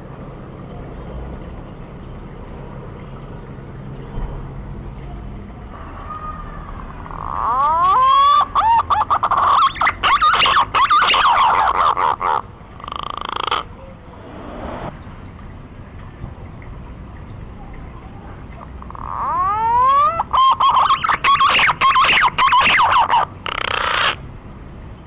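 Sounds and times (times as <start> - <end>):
pigeon whistling calls: 7.4 - 13.6, 19.0 - 24.2.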